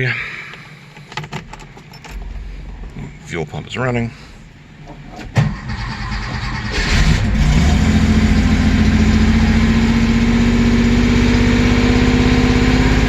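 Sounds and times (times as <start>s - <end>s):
car engine starting and idling: 4.3s - 13.0s.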